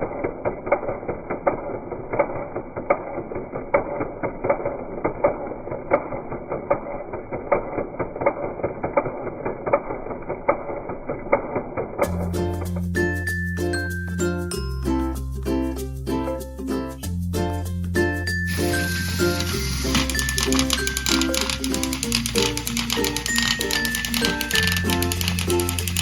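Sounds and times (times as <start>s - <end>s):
engine running with knocking: 0.0s - 12.6s, 18.5s - 26.0s.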